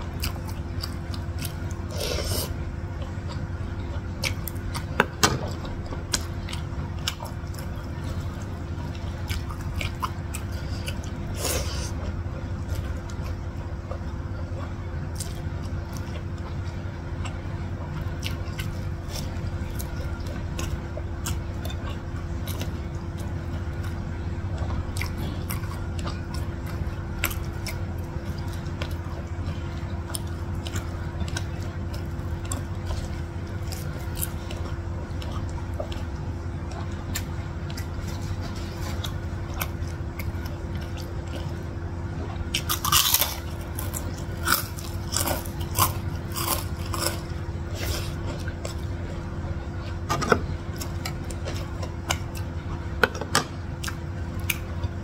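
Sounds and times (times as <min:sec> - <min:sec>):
close-up chewing: 0:00.0 - 0:55.0
low hum: 0:00.0 - 0:55.0
crunching of crispy cracker: 0:24.7 - 0:41.8, 0:42.4 - 0:55.0.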